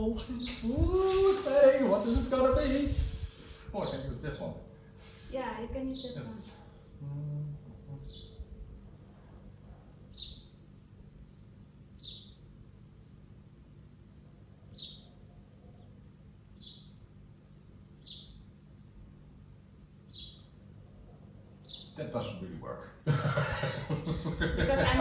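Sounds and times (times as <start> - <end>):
bird chirping: 0.0 - 3.0, 5.7 - 6.6, 7.9 - 8.6, 10.0 - 12.5, 14.6 - 18.6, 20.0 - 20.6, 21.5 - 22.3
faint low hum: 0.0 - 25.0.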